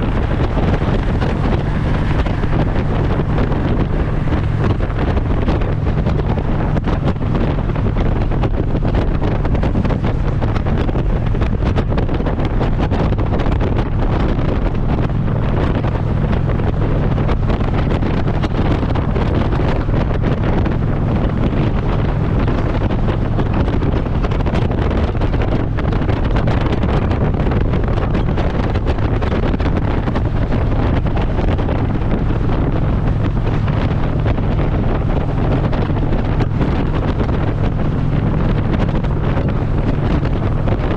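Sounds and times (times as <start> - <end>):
motorcycle engine drone: 0.0 - 40.9
wind rushing over microphone: 0.0 - 40.9.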